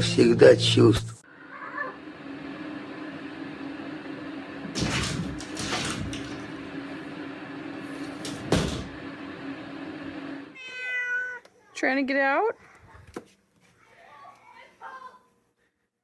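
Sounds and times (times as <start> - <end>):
steady low hum: 0.0 - 10.6
cat meowing: 1.4 - 2.0, 10.6 - 11.5
rattling knocks: 8.2 - 9.0.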